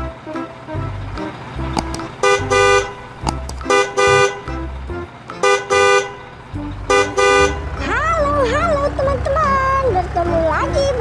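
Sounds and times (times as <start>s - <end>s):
vehicle horn honking: 2.2s - 4.6s, 5.4s - 7.9s.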